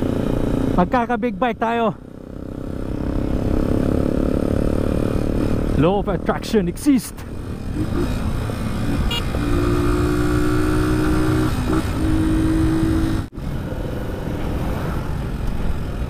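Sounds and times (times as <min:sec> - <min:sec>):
motorcycle engine running: 0:02.0 - 0:06.6, 0:07.2 - 0:13.3.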